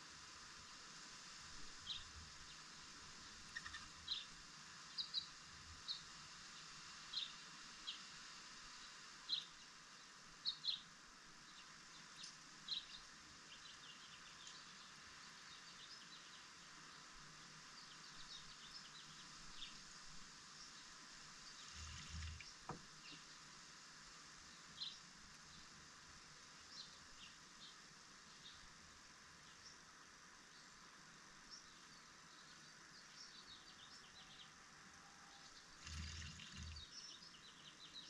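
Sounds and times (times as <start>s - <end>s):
steady background hiss: 0.0s - 38.0s
small birds chirping: 1.8s - 8.1s, 8.7s - 23.4s, 29.4s - 34.6s, 35.2s - 38.0s.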